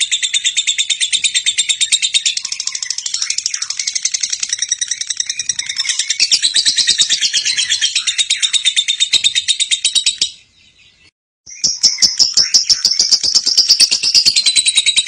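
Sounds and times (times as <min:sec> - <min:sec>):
bird chattering trill: 0:00.0 - 0:10.5, 0:11.5 - 0:15.0.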